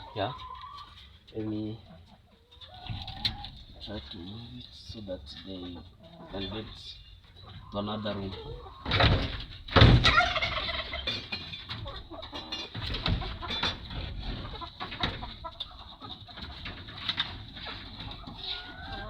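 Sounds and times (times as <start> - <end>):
chickens clucking: 0.0 - 19.0
loud knocks: 8.9 - 10.2.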